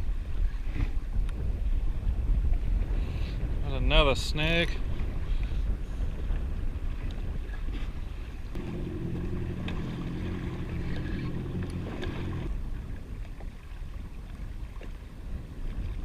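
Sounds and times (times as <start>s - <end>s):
water noise: 0.0s - 16.0s
wind: 0.0s - 16.0s
jet ski engine running: 8.5s - 13.1s.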